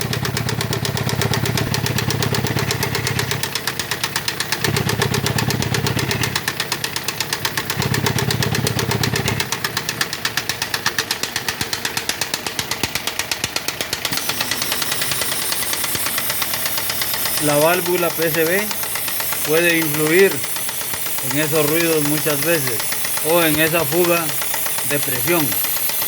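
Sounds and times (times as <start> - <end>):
engine knocking clatter: 0.0 - 26.0.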